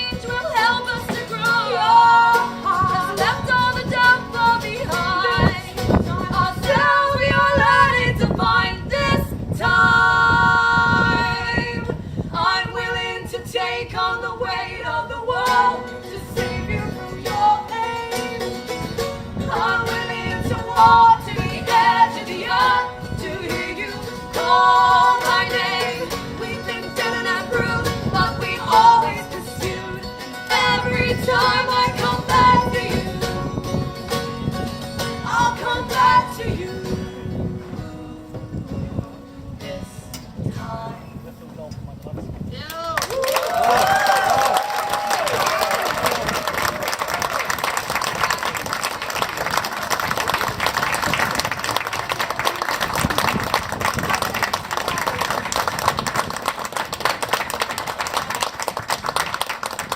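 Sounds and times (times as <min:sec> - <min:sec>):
woman singing: 0:00.0 - 0:18.6, 0:19.4 - 0:33.5, 0:35.2 - 0:41.1
acoustic guitar: 0:00.0 - 0:41.8.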